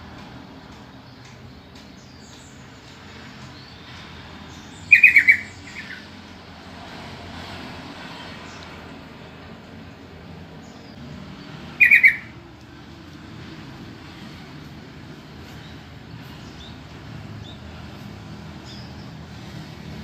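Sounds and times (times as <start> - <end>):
bird call notes: 4.8 - 6.1, 11.7 - 12.4.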